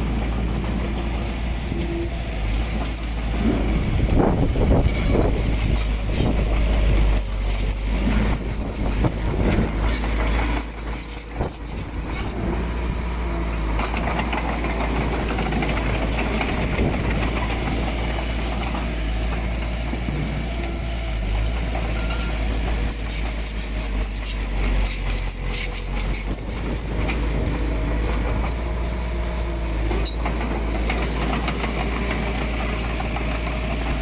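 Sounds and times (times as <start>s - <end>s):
heavy machinery diesel engine: 0.0s - 34.0s
metallic clanks and squeaks: 4.7s - 12.4s, 21.8s - 27.5s, 29.9s - 31.6s.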